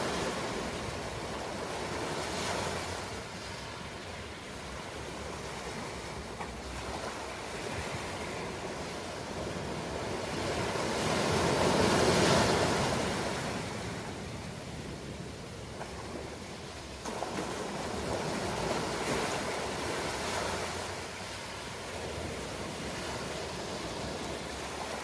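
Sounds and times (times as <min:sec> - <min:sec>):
ocean waves washing: 0:00.0 - 0:25.0
wave breaking: 0:15.7 - 0:25.0.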